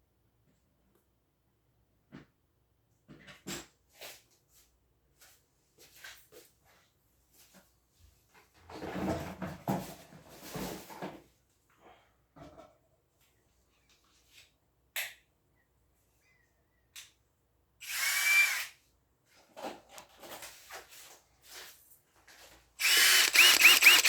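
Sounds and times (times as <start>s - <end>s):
cordless drill motor whining: 17.8s - 18.7s, 22.8s - 24.0s.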